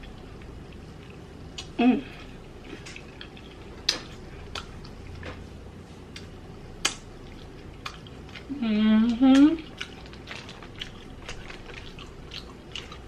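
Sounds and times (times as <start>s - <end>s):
wet mouth clicks and smacks: 2.8s - 5.0s, 6.2s - 8.1s.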